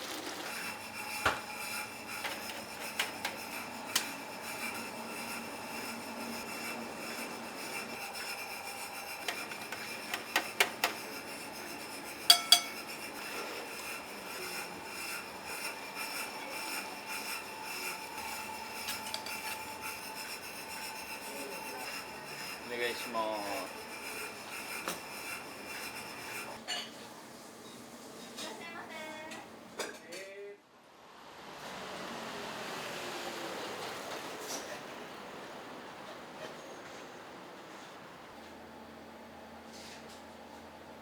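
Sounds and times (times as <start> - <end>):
rubbing and scraping: 0.0 - 26.6
steady background hum: 0.0 - 27.5
metal pots and utensils clinking: 12.2 - 13.1, 18.9 - 19.6.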